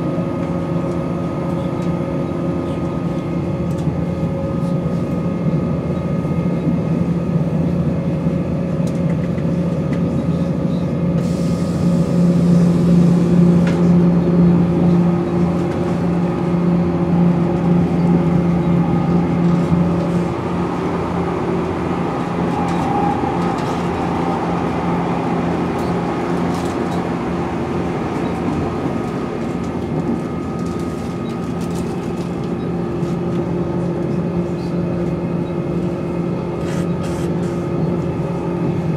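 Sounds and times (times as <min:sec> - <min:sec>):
rail running noise: 0:00.0 - 0:38.9
train diesel engine drone: 0:00.0 - 0:38.9
steady whine: 0:11.2 - 0:38.9.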